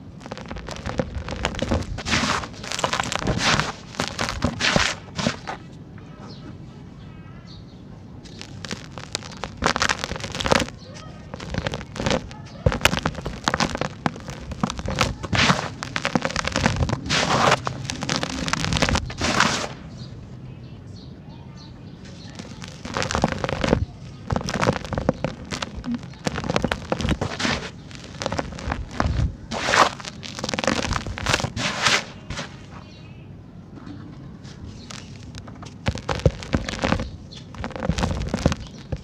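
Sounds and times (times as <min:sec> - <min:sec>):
sand-cement chunks crumbling: 0:00.0 - 0:05.7, 0:08.2 - 0:20.1, 0:22.0 - 0:32.9, 0:34.4 - 0:39.0.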